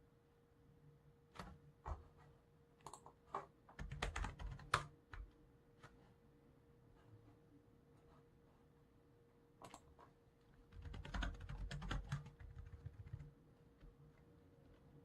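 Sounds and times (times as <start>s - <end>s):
faint steady hum: 0.0s - 15.0s
computer keyboard typing: 2.8s - 5.3s, 9.6s - 9.9s, 10.7s - 13.9s.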